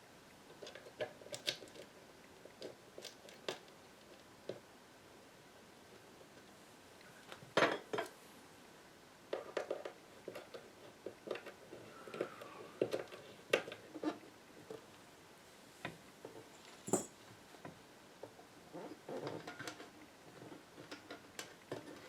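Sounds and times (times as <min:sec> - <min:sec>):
metal parts and tools clinking: 0:16.5 - 0:17.2.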